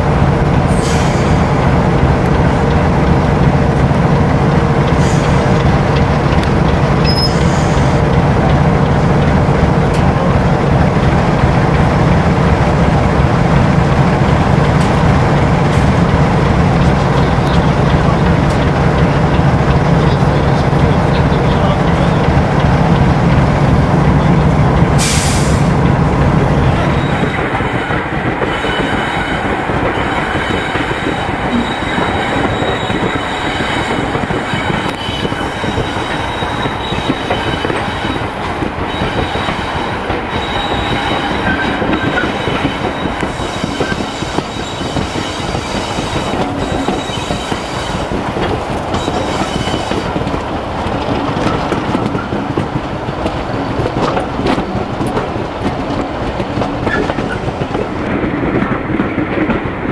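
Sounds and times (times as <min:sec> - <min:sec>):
locomotive diesel engine: 0:00.0 - 0:58.2
train wheels rumbling on rails: 0:00.0 - 0:59.9
wheel flanges squealing: 0:07.0 - 0:08.0, 0:26.6 - 0:52.6.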